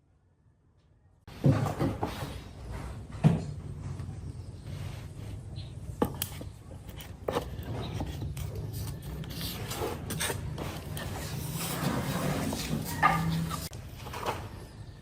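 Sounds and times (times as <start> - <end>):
wood scraping and rubbing: 6.1 - 14.5.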